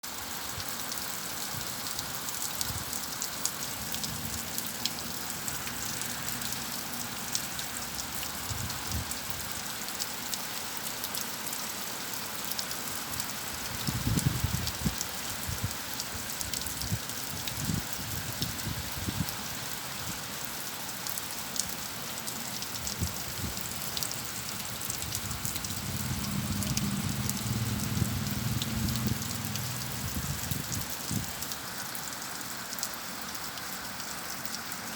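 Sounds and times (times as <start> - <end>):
rain drops ticking on a surface: 0.0 - 34.9
low rumble: 25.2 - 30.7.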